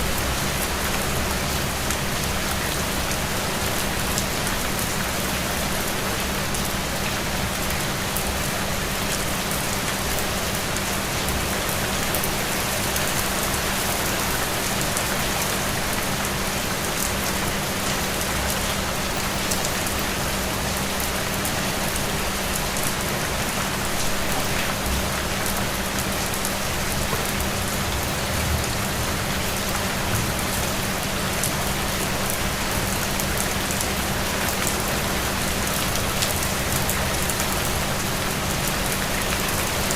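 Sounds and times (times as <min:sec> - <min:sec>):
steady rain hiss: 0:00.0 - 0:39.9
raindrop ticks: 0:17.0 - 0:39.9.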